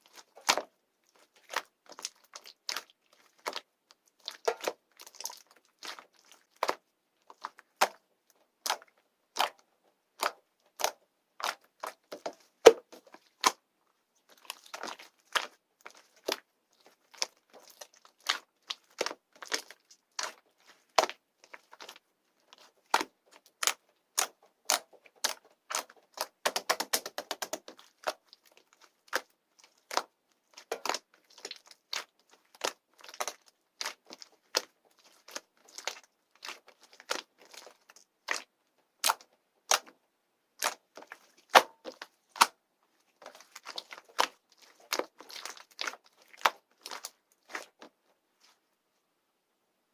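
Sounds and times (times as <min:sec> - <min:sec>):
slime crackling: 0:00.0 - 0:09.6, 0:10.2 - 0:13.6, 0:14.2 - 0:39.9, 0:40.5 - 0:48.6
slime clicking and popping: 0:22.6 - 0:39.9.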